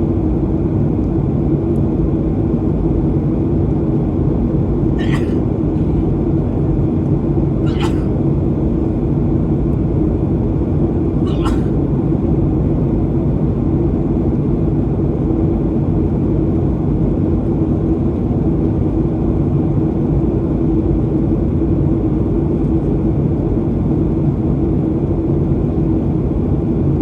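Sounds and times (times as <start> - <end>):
constant cabin hum: 0.0 - 27.0
jet engines rumbling: 3.4 - 12.4
airflow: 5.0 - 6.7.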